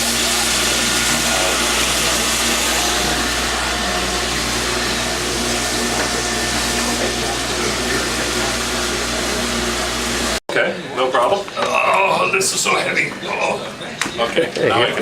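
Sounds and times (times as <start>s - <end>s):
pump and water spray rushing: 0.0s - 10.4s.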